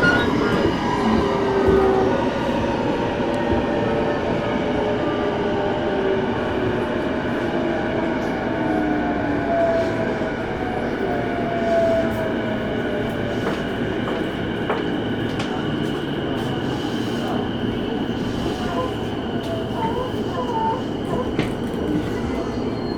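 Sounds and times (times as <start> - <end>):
train wheels rumbling on rail: 0.0 - 22.9.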